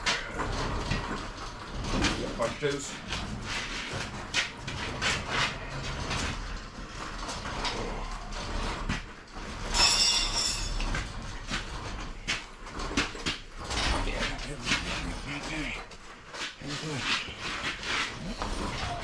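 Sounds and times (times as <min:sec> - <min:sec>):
hand tools clanking on metal: 0:00.0 - 0:19.0
high-pitched metallic squeal: 0:09.8 - 0:10.8.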